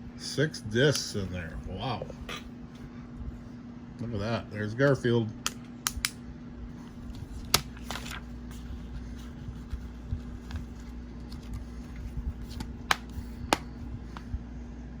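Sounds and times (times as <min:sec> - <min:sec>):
steady low hum: 0:00.0 - 0:15.0
hands tapping and rustling plastic case: 0:07.1 - 0:14.3.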